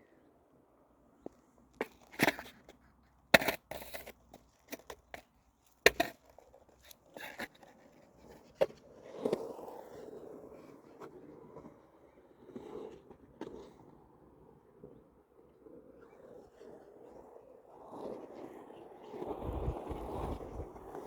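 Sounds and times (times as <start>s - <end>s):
skateboard knocking and clacking: 1.2s - 10.0s.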